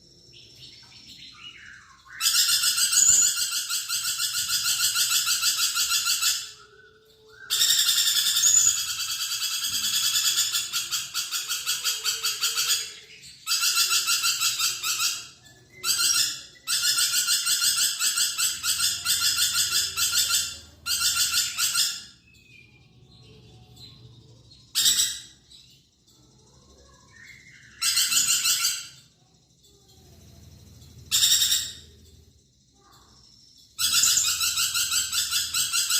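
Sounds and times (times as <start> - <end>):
lorikeet trilling calls: 1.1 - 22.6, 24.7 - 25.5, 27.0 - 29.0, 31.1 - 32.0, 33.6 - 35.9.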